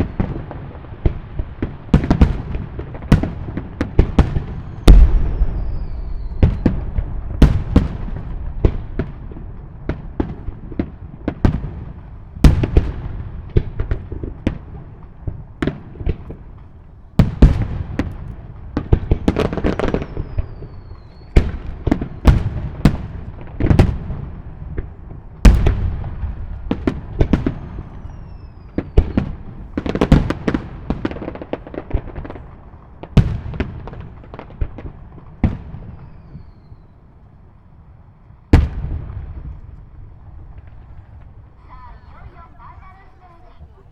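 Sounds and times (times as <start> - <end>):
fireworks crackling: 0.0 - 43.9
firework shells bursting: 2.0 - 32.4
falling firework whistles: 4.2 - 8.3, 19.8 - 22.4, 27.3 - 29.9, 35.8 - 37.1.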